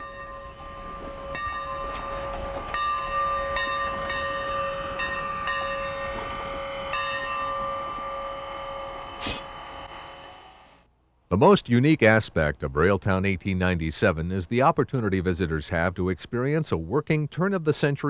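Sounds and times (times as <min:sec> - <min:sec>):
locomotive bell ringing: 0:00.0 - 0:10.5.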